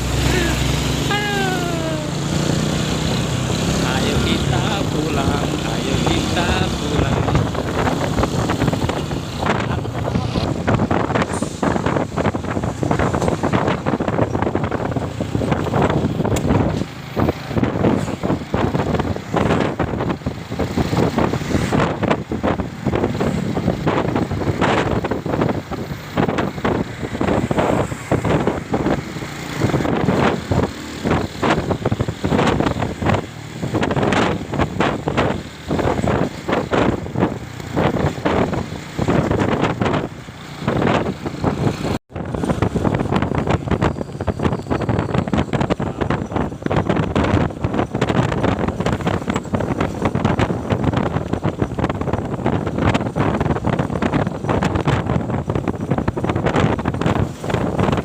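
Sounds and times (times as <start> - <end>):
motorcycle engine running: 0.0 - 11.2
motorcycle engine: 0.0 - 58.0
road noise: 0.0 - 58.0
wind buffeting microphone: 0.0 - 58.0.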